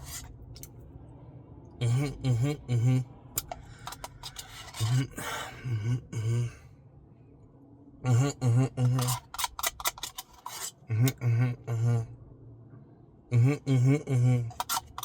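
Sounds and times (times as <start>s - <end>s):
man beatboxing syllables: 1.8s - 3.1s, 10.9s - 12.1s, 13.3s - 14.8s.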